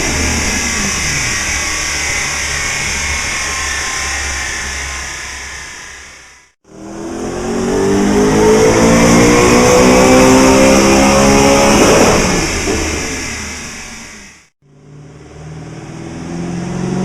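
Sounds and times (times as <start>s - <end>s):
rev limiter crackling burst: 0.0s - 6.5s, 8.1s - 14.5s
engine revving on a dyno: 0.0s - 14.2s, 14.8s - 17.0s.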